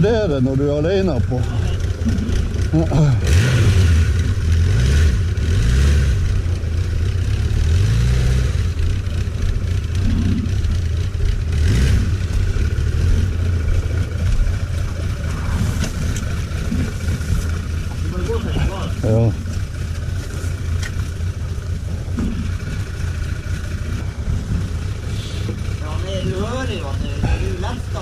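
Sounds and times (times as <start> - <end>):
motorcycle engine running slowly: 0.0 - 28.0.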